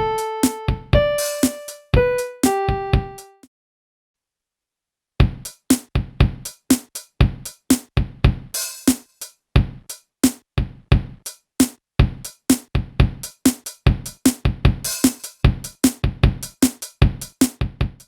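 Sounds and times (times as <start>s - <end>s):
drum machine kick and snare beat: 0.0s - 3.4s, 5.2s - 18.0s
keyboard note: 0.0s - 3.4s.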